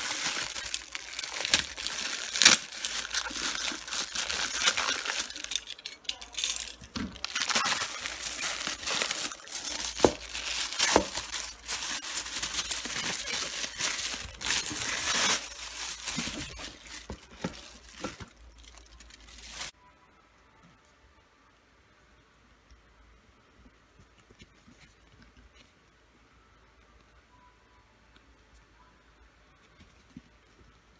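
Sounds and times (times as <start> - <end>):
packaging crinkling and rustling: 0.0 - 19.8.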